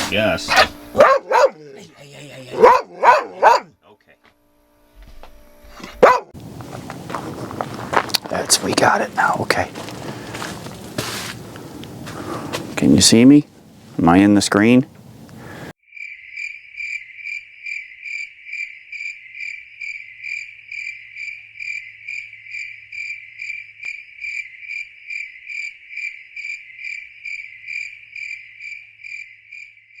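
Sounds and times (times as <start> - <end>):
cricket chirping: 15.8 - 30.0.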